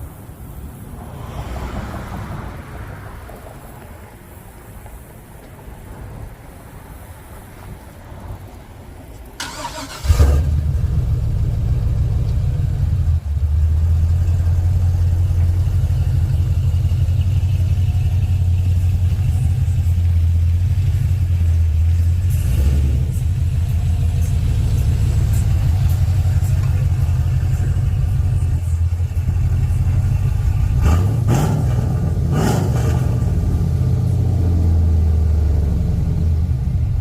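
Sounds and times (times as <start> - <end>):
truck engine starting and idling: 9.2 - 37.0.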